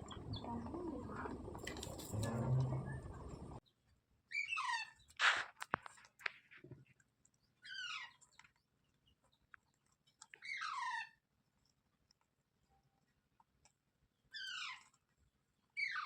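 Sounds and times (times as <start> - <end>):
parrot screeching: 10.4 - 11.1.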